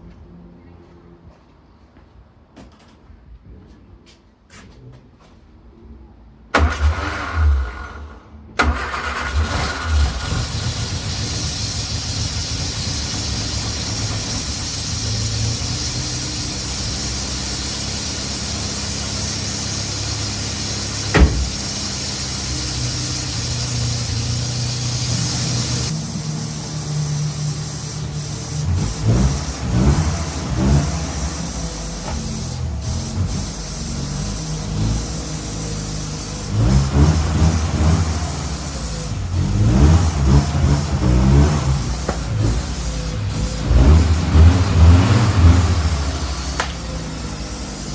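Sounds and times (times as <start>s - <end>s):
car engine cranking: 6.6s - 47.9s
car engine idling: 7.6s - 47.9s
sharp knock: 21.1s - 21.7s.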